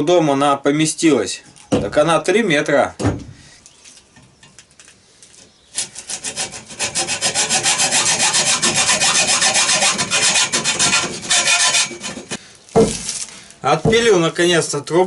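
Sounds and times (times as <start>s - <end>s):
hacksaw cutting metal tube: 5.8s - 12.4s.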